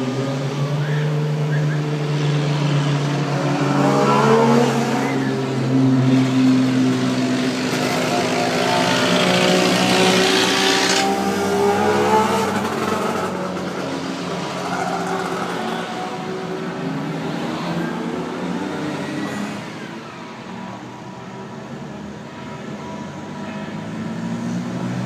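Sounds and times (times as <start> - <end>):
car engine revving: 0.0 - 19.5
old car engines running: 6.5 - 16.9.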